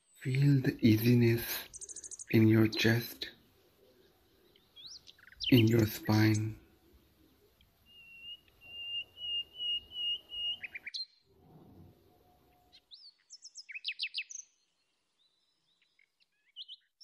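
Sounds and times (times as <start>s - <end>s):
small birds chirping: 0.0s - 11.3s, 12.2s - 17.0s.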